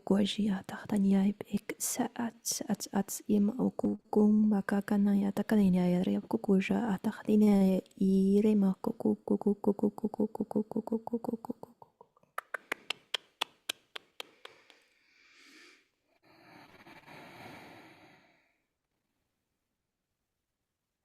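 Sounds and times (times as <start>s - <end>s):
tongue clicks: 10.4s - 14.9s
breathy exhales: 15.0s - 18.5s.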